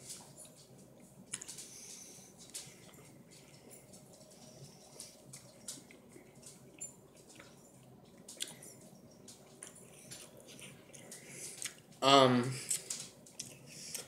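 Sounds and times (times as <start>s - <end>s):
person chewing wet mouth sounds: 8.2s - 8.8s, 9.4s - 11.9s, 12.6s - 14.0s.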